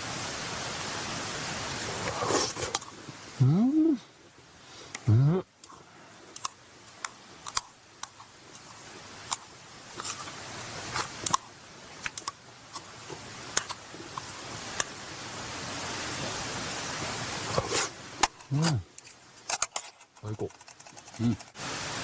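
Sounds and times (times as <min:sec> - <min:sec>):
sharp pops and crackles: 0:02.0 - 0:03.3, 0:04.9 - 0:15.0, 0:17.4 - 0:21.6.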